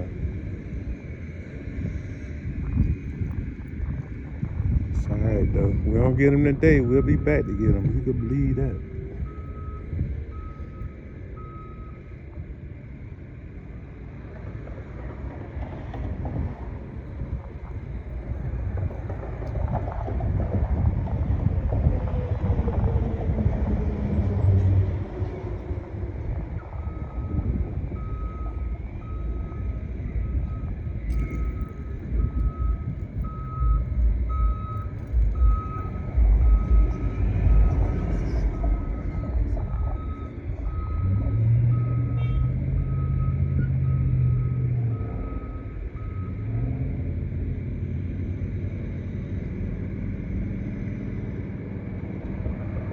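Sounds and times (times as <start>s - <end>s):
wind rumbling on microphone: 0.0s - 52.9s
reversing alarm beeps: 5.2s - 12.1s, 26.6s - 46.5s.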